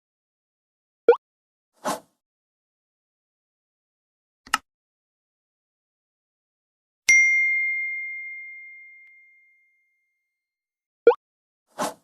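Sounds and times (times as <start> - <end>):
bell-like ding: 7.1 - 10.1.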